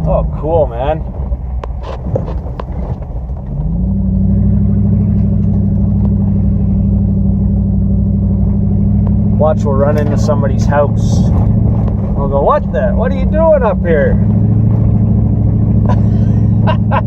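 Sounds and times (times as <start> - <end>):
knocks and rattles over bumps: 0.0 - 3.8, 8.6 - 13.4
truck engine revving: 0.0 - 17.0.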